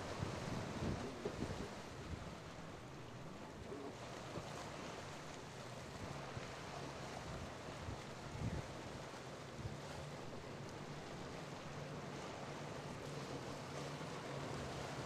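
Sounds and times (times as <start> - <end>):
boat engine droning: 0.0 - 15.0
surf washing: 0.0 - 15.0.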